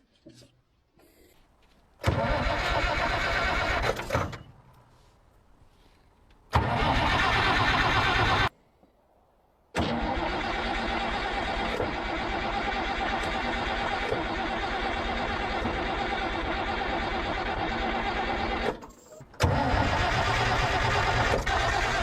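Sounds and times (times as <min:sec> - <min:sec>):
diesel engine starter cranking: 0:02.0 - 0:04.7, 0:06.5 - 0:08.5, 0:09.8 - 0:22.0.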